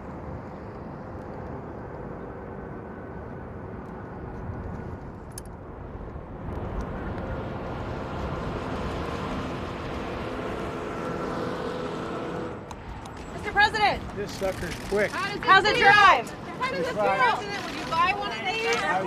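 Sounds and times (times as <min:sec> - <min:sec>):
vehicle rushing with hum: 0:00.0 - 0:14.9.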